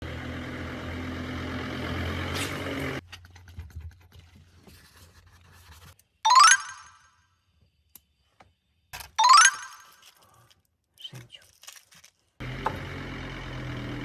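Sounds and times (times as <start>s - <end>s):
vehicle engine idling: 0.0s - 3.0s, 12.4s - 14.0s.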